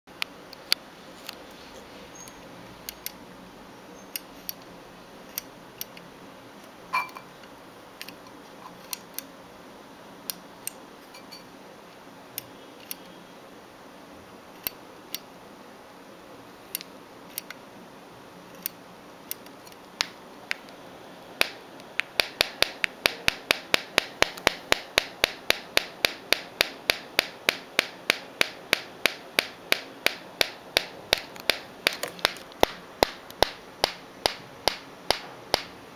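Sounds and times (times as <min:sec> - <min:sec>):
steady hiss: 0:00.1 - 0:35.9.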